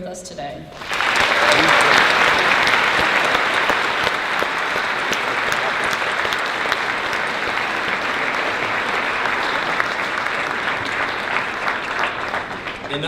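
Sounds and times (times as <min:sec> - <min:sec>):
large audience applauding: 0:00.7 - 0:13.0.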